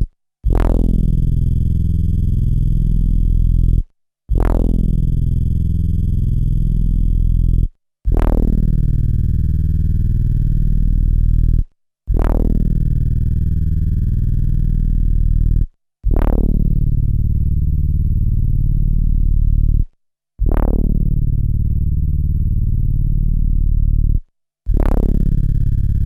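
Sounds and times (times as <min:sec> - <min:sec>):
low synth bass notes: 0:00.0 - 0:26.0.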